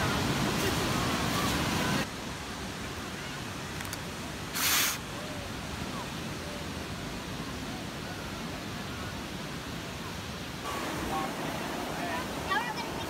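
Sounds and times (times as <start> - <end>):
surf rushing: 0.0 - 2.1, 9.8 - 13.0
wind: 0.0 - 13.0.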